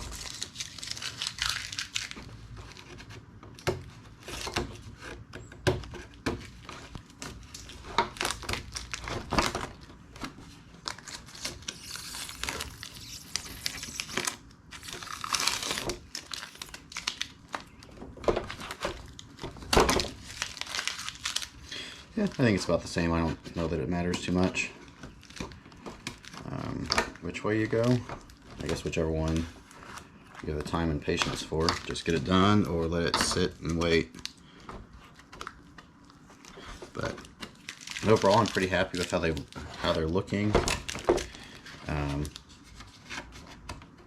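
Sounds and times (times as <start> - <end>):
tape and rubber coating peeling: 0.0 - 34.4, 35.0 - 44.0.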